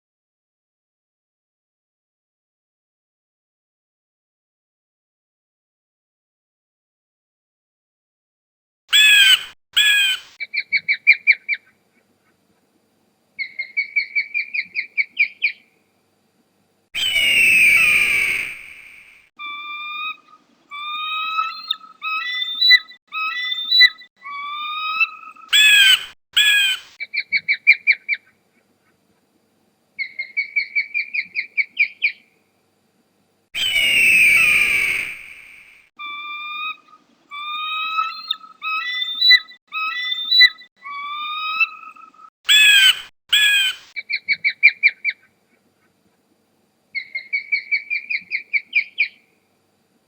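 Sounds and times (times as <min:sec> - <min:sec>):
short whistled bird notes: 0:08.9 - 0:10.3, 0:17.0 - 0:19.2, 0:25.5 - 0:26.9, 0:33.6 - 0:35.8, 0:42.5 - 0:43.8
harsh bird squawking: 0:08.9 - 0:10.4, 0:17.0 - 0:27.0, 0:33.6 - 0:43.9
rapid trilled bird calls: 0:08.9 - 0:10.4, 0:17.0 - 0:27.0, 0:33.6 - 0:43.9.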